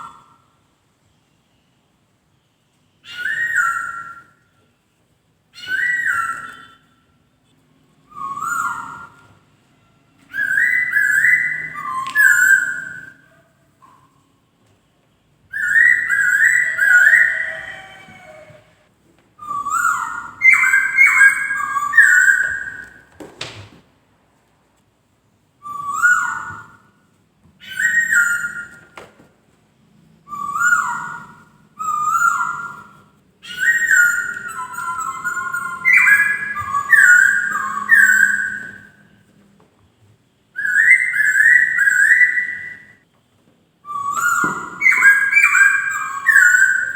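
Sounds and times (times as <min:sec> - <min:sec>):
bird whistled song: 0:03.0 - 0:04.5, 0:05.5 - 0:07.0, 0:08.0 - 0:09.5, 0:10.2 - 0:14.4, 0:15.5 - 0:18.7, 0:19.4 - 0:23.1, 0:25.6 - 0:27.0, 0:27.6 - 0:29.0, 0:30.3 - 0:39.2, 0:40.5 - 0:43.0, 0:43.8 - 0:46.9.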